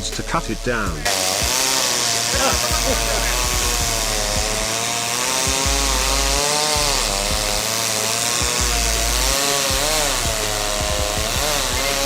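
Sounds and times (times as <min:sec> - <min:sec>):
chainsaw cutting tree: 0:00.0 - 0:12.0.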